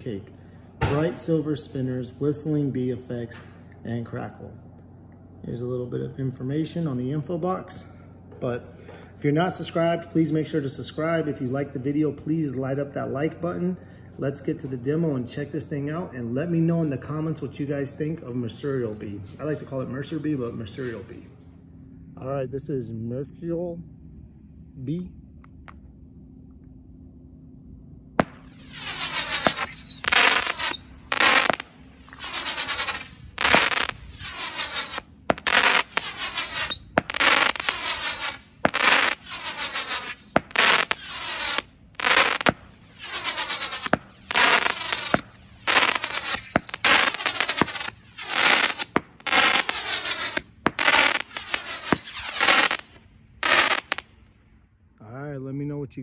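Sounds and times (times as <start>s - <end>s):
firework launch reports: 0.0s - 4.5s, 5.4s - 21.3s, 28.2s - 54.1s
shrill firework whistling: 28.2s - 54.1s.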